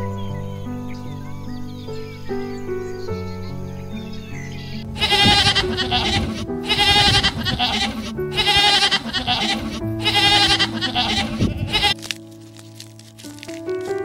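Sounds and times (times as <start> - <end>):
background music with sustained tones: 0.0 - 14.0
goats bleating: 5.0 - 12.0.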